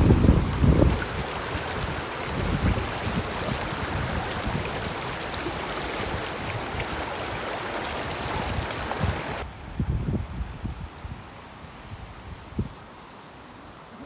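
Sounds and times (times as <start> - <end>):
stream rushing: 0.0 - 9.7
wind buffeting microphone: 0.0 - 12.9.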